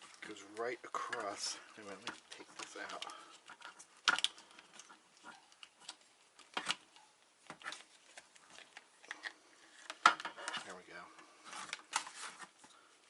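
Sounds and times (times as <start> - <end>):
clicks and knocks of hands working: 0.0 - 12.8.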